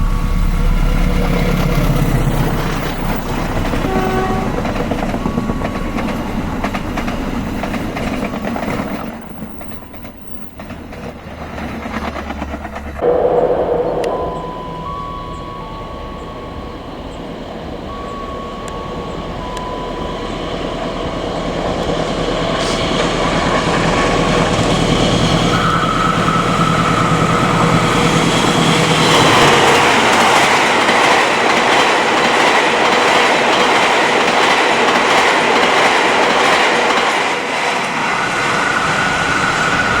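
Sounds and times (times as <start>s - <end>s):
wheels rumbling on rail: 0.0s - 40.0s
high-pitched tones: 13.0s - 20.7s.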